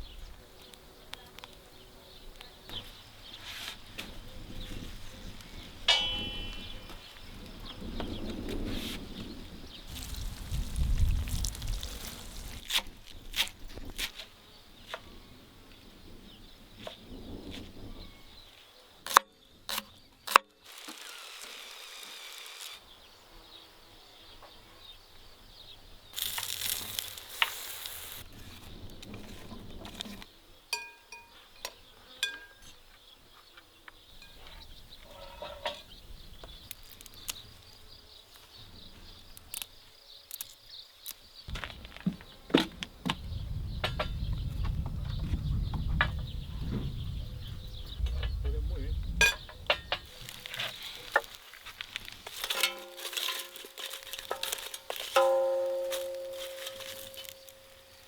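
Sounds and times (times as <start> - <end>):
cooking utensils clinking: 5.9 - 6.7, 52.4 - 57.9.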